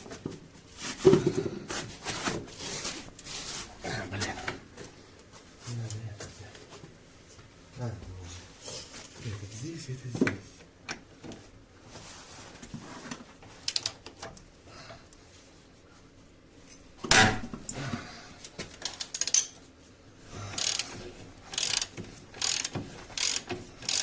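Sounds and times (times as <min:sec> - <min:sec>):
ratchet wrench clicking: 0:13.6 - 0:14.0, 0:18.9 - 0:19.5, 0:20.6 - 0:20.9, 0:21.5 - 0:24.0.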